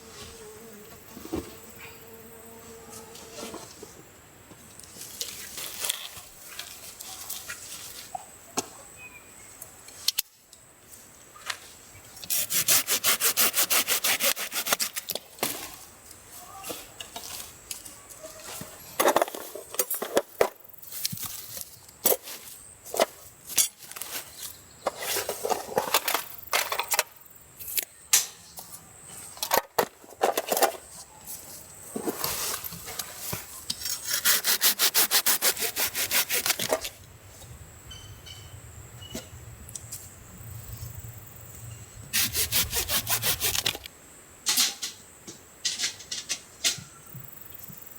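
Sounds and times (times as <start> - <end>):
hand saw cutting wood: 12.3 - 15.1, 33.8 - 36.9, 42.2 - 43.9.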